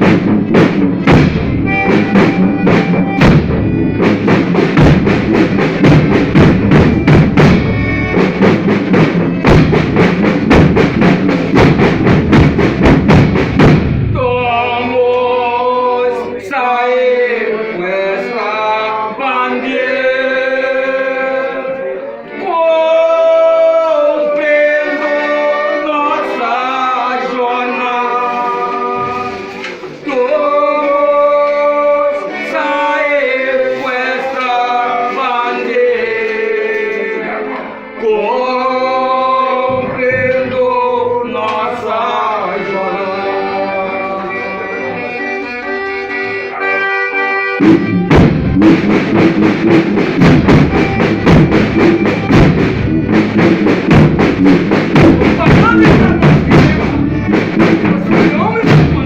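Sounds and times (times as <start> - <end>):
instruments accompanying: 0.0 - 59.0
voices singing in harmony: 14.2 - 45.9.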